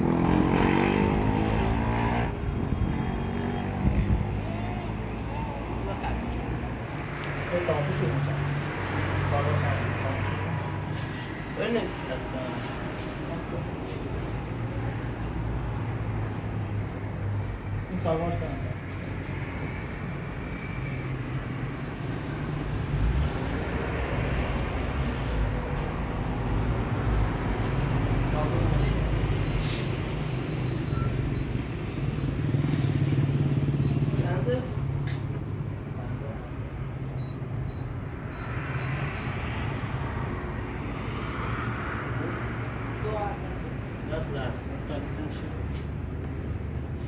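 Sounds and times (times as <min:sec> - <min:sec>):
steady engine hum: 0:00.0 - 0:06.9
vehicle engine and road hum: 0:00.0 - 0:47.0.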